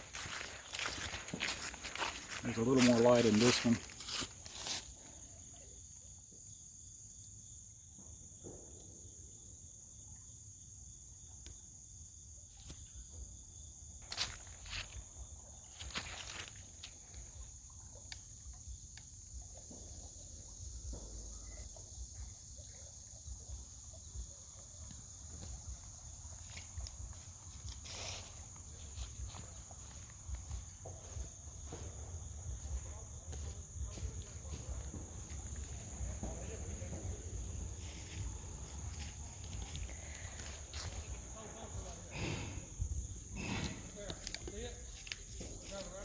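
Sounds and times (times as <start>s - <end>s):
steps in the brush: 0.0s - 5.7s, 14.0s - 19.9s, 24.8s - 46.0s
insects trilling: 0.0s - 46.0s.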